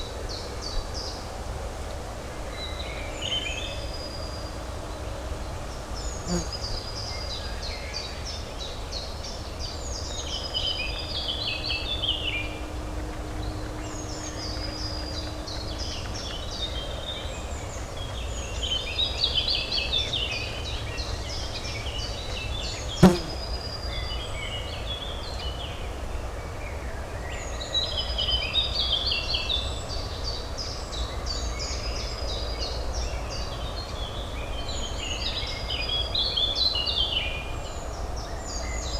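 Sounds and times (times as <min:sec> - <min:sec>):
low urban hum: 0:01.5 - 0:23.6
songbirds chirping: 0:05.7 - 0:23.6.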